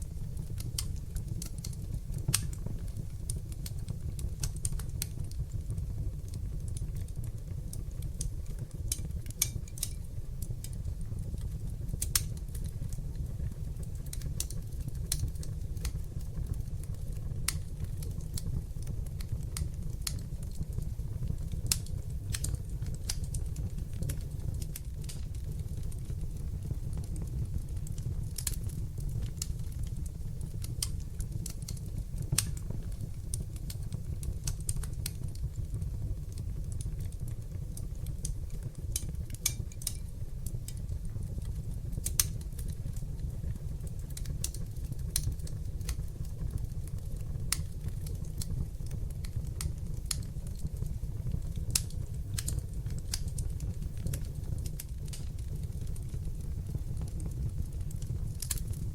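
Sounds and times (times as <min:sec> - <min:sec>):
fire crackling and popping: 0:00.0 - 0:58.9
fire rumbling: 0:00.0 - 0:58.9.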